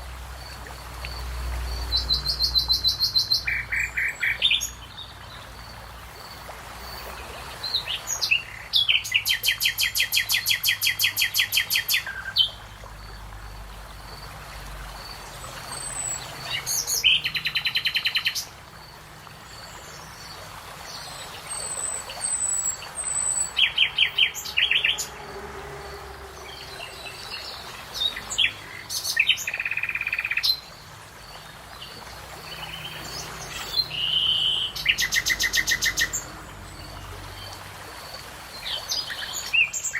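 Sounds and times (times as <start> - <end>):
songbird trills: 26.4 - 37.5.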